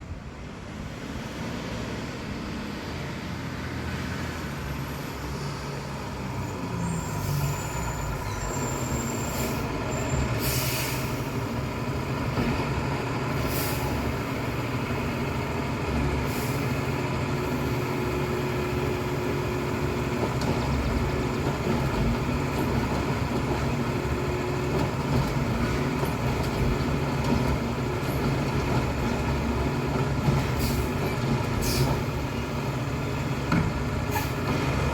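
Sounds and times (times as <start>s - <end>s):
truck diesel engine running: 6.8s - 34.9s
short hisses of released air: 10.4s - 11.3s.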